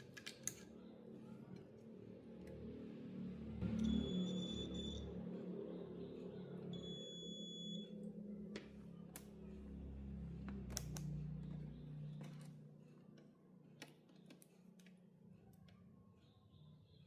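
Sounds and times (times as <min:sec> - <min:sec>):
low hum: 0:00.8 - 0:13.8.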